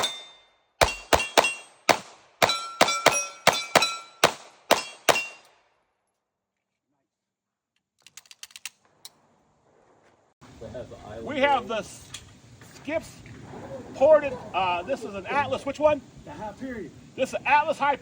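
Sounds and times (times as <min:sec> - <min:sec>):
pistol shots: 0:00.0 - 0:05.5
steel targets ringing: 0:00.0 - 0:05.5.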